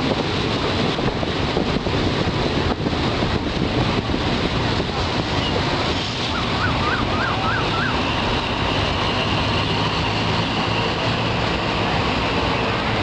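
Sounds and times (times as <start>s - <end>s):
passenger train rumbling: 0.0s - 13.0s.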